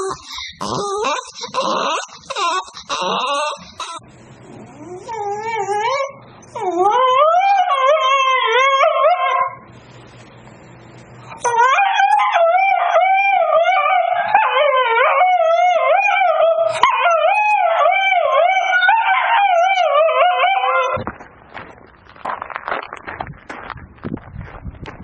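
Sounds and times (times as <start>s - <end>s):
dog howling: 0.0s - 9.6s, 11.3s - 21.0s.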